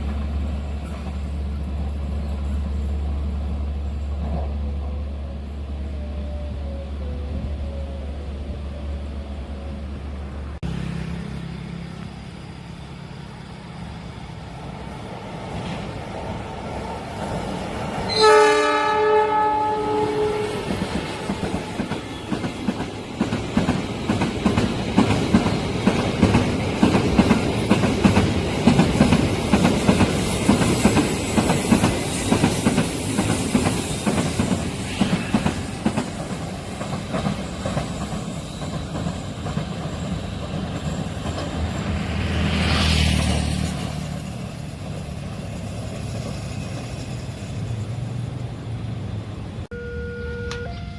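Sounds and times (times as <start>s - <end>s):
train wheels clickety-clack: 0.0s - 5.0s, 19.7s - 47.7s
train horn blast: 18.0s - 21.4s, 49.7s - 50.9s.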